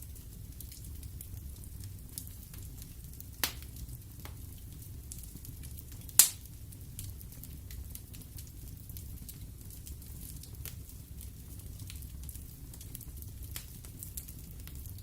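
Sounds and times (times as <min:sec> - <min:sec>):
fire crackling: 0:00.0 - 0:15.0
rumble of flames: 0:00.0 - 0:15.0
sharp pops of burning wood: 0:02.1 - 0:07.1.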